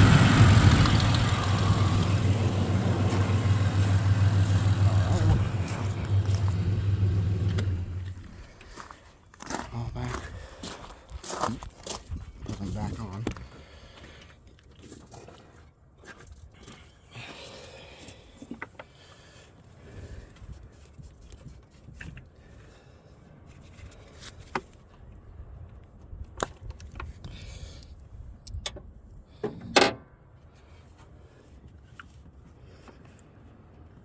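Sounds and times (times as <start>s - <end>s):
misfiring engine idling: 0.0s - 8.4s
hands clicking and scraping on engine: 0.0s - 8.8s, 18.0s - 19.4s, 26.0s - 30.0s.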